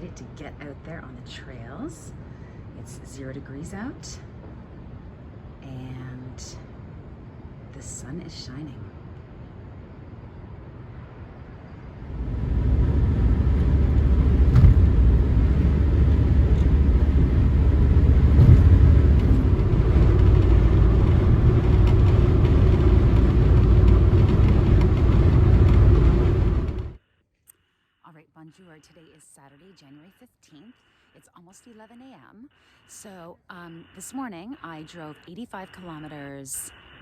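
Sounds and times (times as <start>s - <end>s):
car engine and tyres rumbling: 9.2s - 27.0s.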